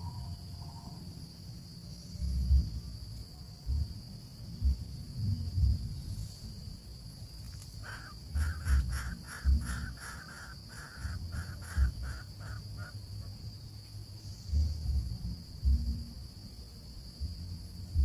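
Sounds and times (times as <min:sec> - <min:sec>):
high insect-like drone: 0:05.4 - 0:18.0
baby bird begging calls: 0:07.8 - 0:13.0
low thumps: 0:14.5 - 0:16.2.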